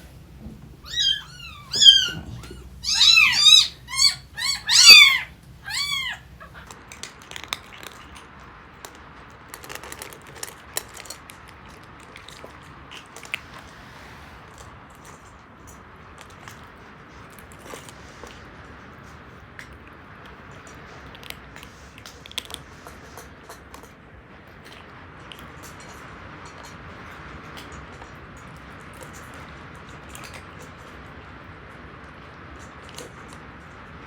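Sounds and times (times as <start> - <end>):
faint clicks and rustles: 0.0 - 24.0
kitten meowing: 0.4 - 6.6.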